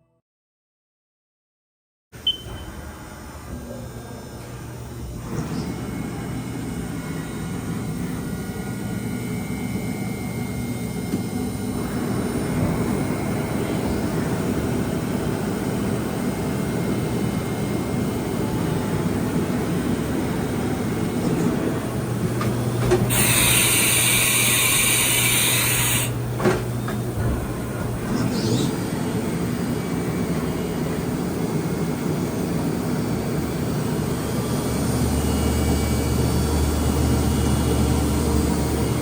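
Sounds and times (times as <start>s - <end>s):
machine mechanical hum: 2.2s - 39.0s
loud hiss: 23.1s - 26.1s.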